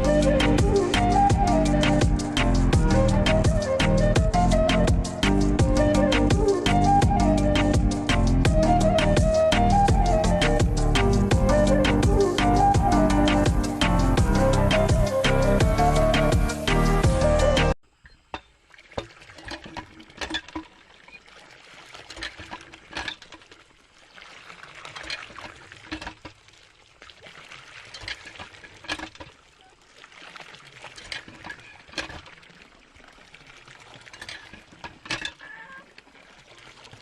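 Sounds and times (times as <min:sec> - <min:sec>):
water trickling and pouring: 0:18.0 - 0:37.0.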